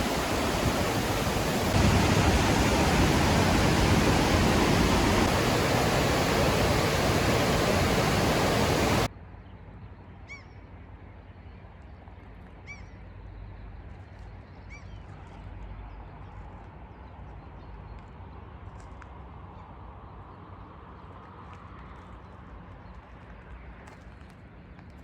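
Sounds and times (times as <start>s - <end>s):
bird calls: 0.0s - 9.1s
loud steady rushing noise: 0.0s - 9.1s
low hum: 0.0s - 9.1s.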